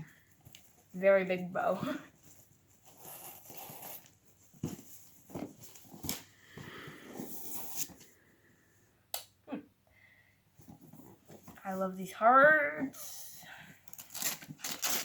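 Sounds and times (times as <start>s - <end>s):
paper rustling and crinkling: 13.9s - 15.0s.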